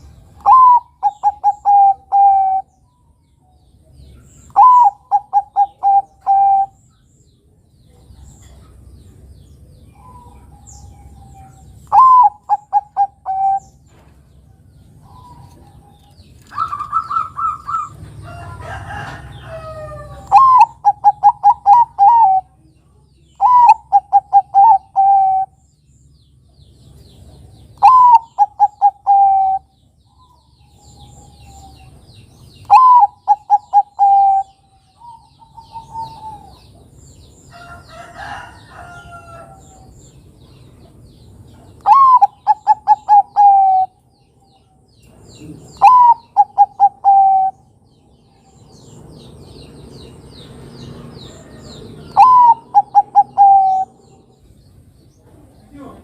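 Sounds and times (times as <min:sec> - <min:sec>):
dove cooing: 0:00.4 - 0:02.7, 0:04.5 - 0:06.8, 0:09.9 - 0:13.8, 0:16.5 - 0:18.0, 0:18.6 - 0:22.6, 0:23.4 - 0:25.6, 0:27.8 - 0:29.7, 0:32.6 - 0:36.7, 0:41.8 - 0:44.0, 0:45.4 - 0:47.7, 0:51.3 - 0:54.2
rough bird call: 0:41.8 - 0:44.0, 0:45.6 - 0:47.6, 0:50.8 - 0:54.4.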